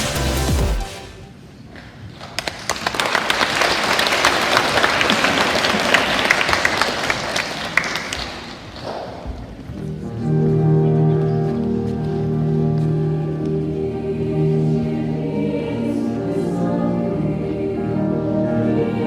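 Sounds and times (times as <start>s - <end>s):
audience applauding: 2.3s - 8.9s.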